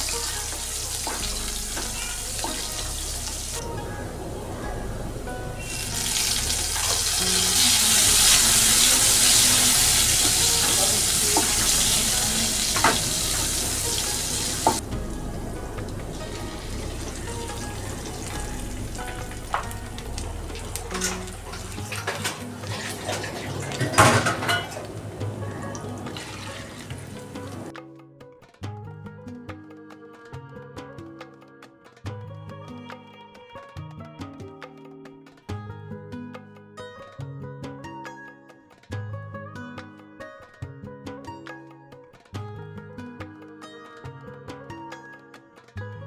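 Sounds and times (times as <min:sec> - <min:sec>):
food sizzling in hot oil: 0:00.0 - 0:03.6, 0:05.6 - 0:14.8, 0:15.6 - 0:27.7
soft background music: 0:00.0 - 0:46.0.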